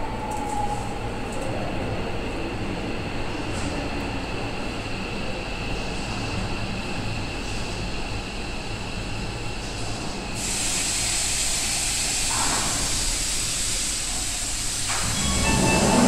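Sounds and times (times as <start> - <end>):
electric train rumble and whine: 0.0 - 16.0
steady hiss of air: 10.1 - 15.6.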